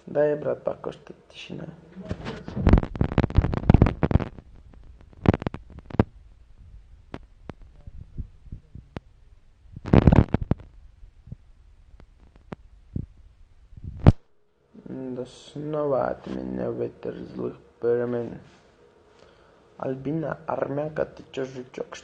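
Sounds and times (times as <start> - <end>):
rustling against microphone: 2.0 - 9.1, 9.7 - 14.2.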